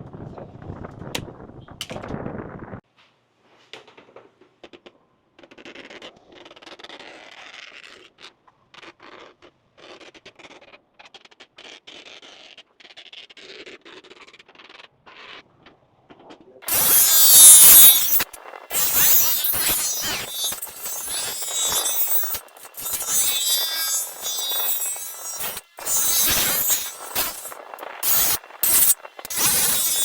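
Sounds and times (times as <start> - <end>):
faint scraping and scratching: 16.7 - 30.0.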